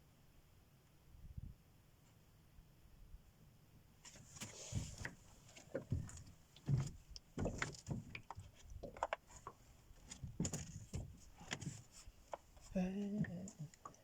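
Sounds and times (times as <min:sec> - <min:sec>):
irregular knocks and clicks: 0:04.8 - 0:12.4.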